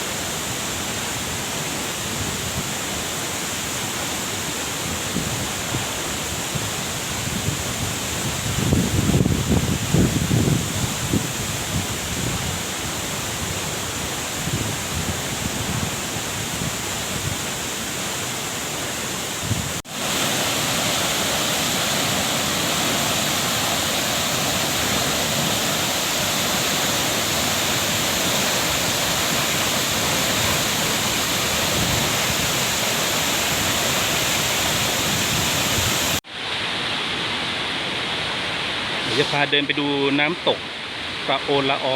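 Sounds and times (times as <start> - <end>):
waterfall rushing: 0.0 - 41.9
wind buffeting microphone: 5.0 - 17.6, 19.4 - 19.8, 27.4 - 36.2.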